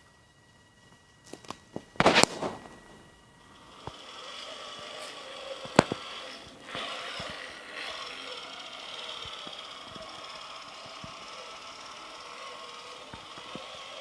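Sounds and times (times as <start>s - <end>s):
toy truck motor whirring: 0.0s - 14.0s
sharp click: 5.6s - 7.4s.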